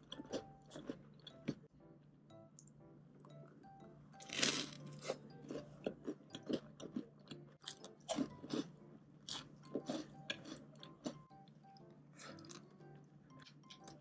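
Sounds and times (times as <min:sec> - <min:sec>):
chewing crisp toast: 0:00.0 - 0:01.6, 0:04.2 - 0:11.5, 0:12.2 - 0:12.8.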